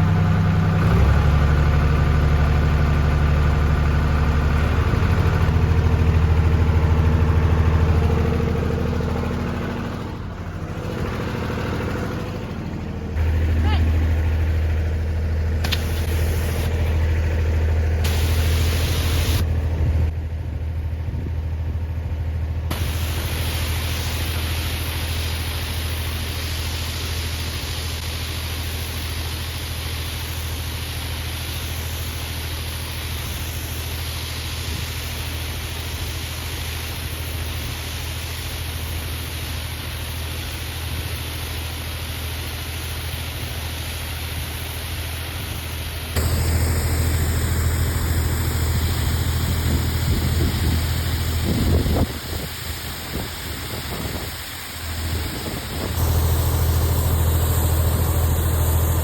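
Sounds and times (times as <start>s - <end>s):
tractor engine running: 0.0s - 59.0s
high-pressure water spray hiss: 15.6s - 16.9s, 18.0s - 19.5s, 22.7s - 59.0s.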